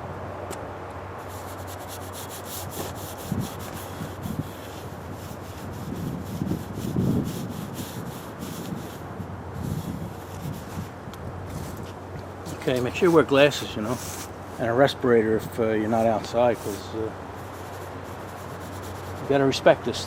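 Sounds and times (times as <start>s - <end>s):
wind rumbling on microphone: 0.0s - 20.0s
brush scrubbing metal: 1.2s - 10.9s, 12.5s - 14.6s, 15.8s - 19.6s.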